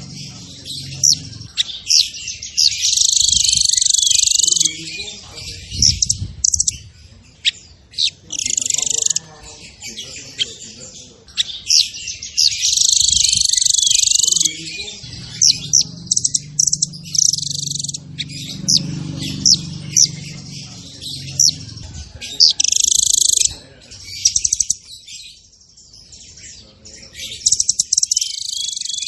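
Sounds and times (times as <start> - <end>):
songbird singing chirps and trills: 0.0 - 29.0.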